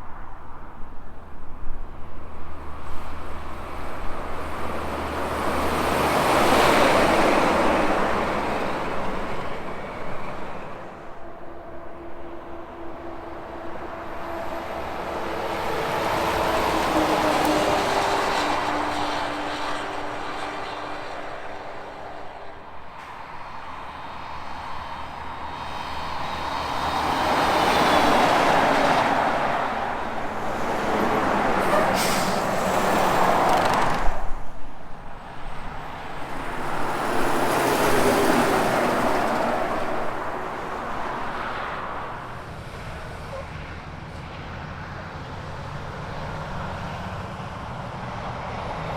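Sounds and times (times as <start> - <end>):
highway traffic passing: 0.0 - 48.9
truck engine downshifting: 12.7 - 48.9.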